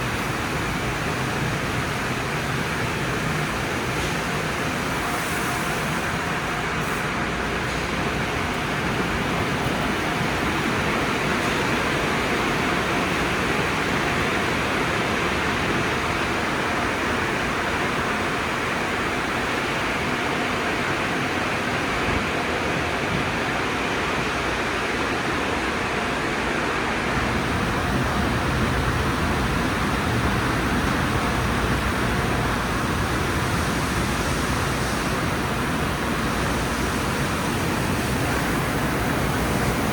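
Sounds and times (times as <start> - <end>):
air dryers rushing: 26.8 - 39.9.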